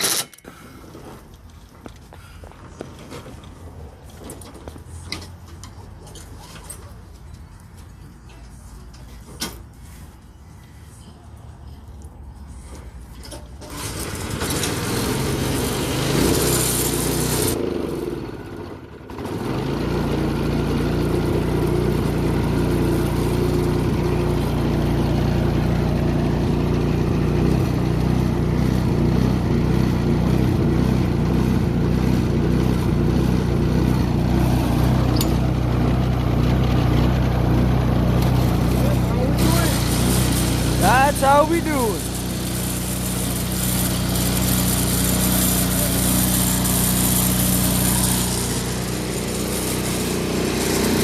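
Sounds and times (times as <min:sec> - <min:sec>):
snowblower engine running: 0:13.6 - 0:51.0.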